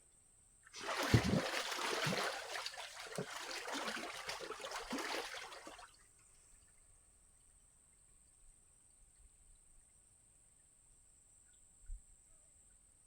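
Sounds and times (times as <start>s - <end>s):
splashing in muddy water: 0.7s - 6.0s.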